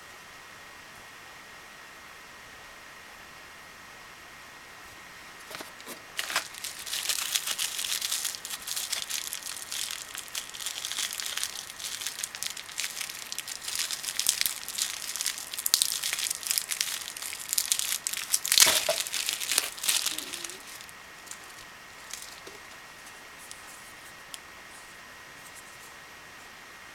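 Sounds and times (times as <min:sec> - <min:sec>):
faint steady hiss: 0:00.0 - 0:26.9
packaging crinkling: 0:05.4 - 0:24.4.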